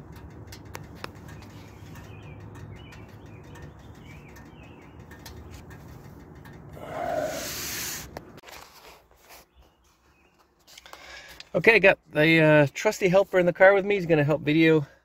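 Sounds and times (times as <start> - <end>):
birds cooing and chirping: 6.7 - 8.1.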